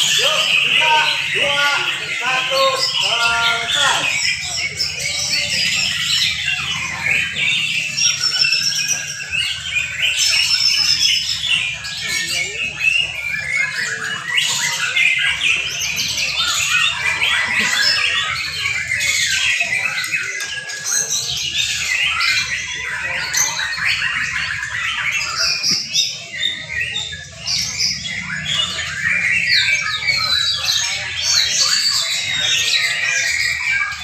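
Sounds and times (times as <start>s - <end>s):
birds singing in chorus: 0.0s - 34.0s.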